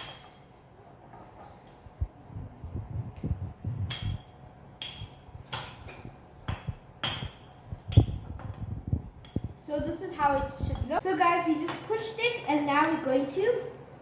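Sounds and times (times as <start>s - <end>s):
sharp knocks: 3.8s - 9.5s.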